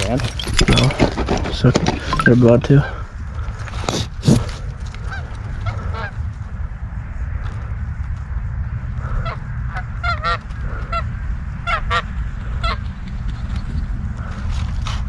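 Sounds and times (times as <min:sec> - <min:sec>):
steady low rumble: 0:00.0 - 0:15.0
geese honking: 0:05.0 - 0:06.2, 0:09.0 - 0:12.9.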